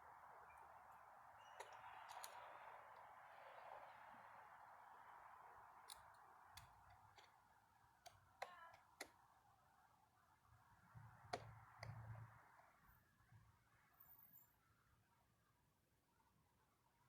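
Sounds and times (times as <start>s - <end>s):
small metal parts clicking: 1.4s - 3.1s.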